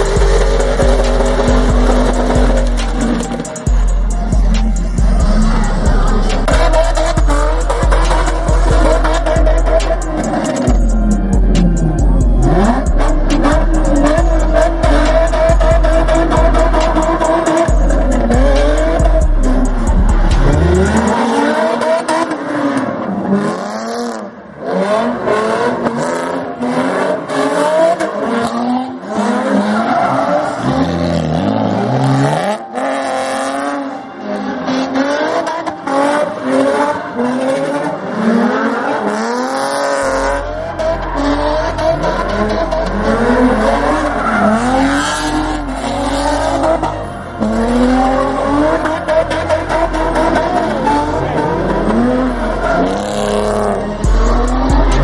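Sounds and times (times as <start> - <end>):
music with deep bass: 0.0 - 22.6, 35.0 - 55.0
car engine revving: 0.0 - 55.0
tire squeal: 0.0 - 55.0.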